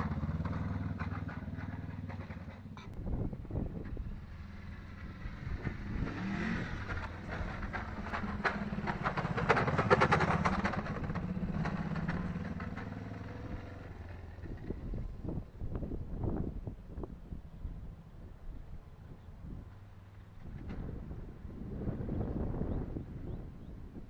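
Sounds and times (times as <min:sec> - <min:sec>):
motorcycle engine revving: 0:00.0 - 0:16.4.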